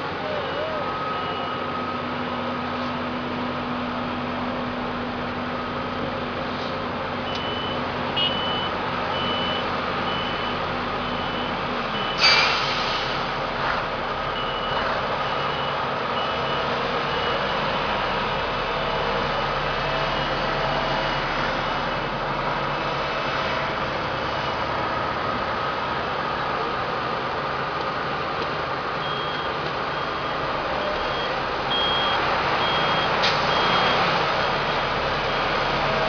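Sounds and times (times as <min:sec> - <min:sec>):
reversing alarm beeping: 0:00.2 - 0:02.2, 0:07.2 - 0:12.8, 0:14.3 - 0:21.1, 0:29.0 - 0:36.0.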